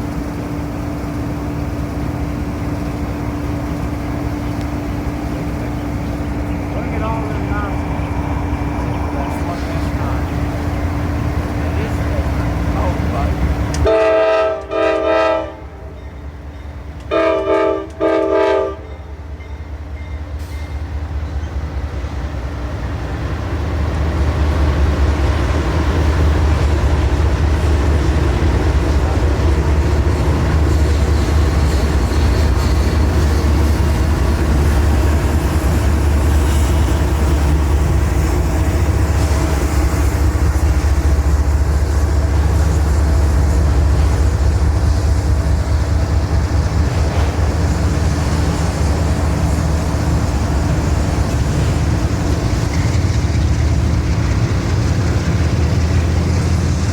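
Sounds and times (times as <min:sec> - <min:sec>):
train rumbling past: 0:00.0 - 0:56.9
diesel locomotive horn blasts: 0:13.7 - 0:16.0, 0:17.0 - 0:19.2.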